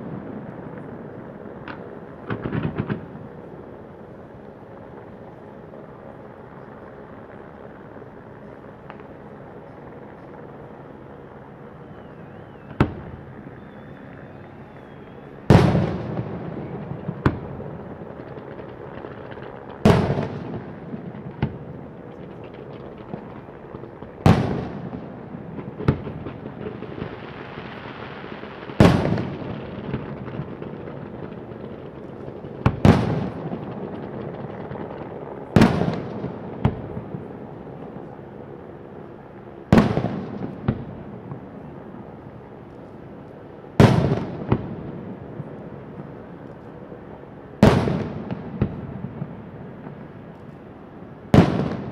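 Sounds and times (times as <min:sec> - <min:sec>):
firework bangs with echoing rumble: 0:00.0 - 0:07.5, 0:11.8 - 0:42.5, 0:43.6 - 0:50.3, 0:51.2 - 0:51.9
small firework pops: 0:01.6 - 0:03.2, 0:08.8 - 0:09.8, 0:11.9 - 0:14.0, 0:14.8 - 0:24.9, 0:25.5 - 0:27.7, 0:39.7 - 0:41.5.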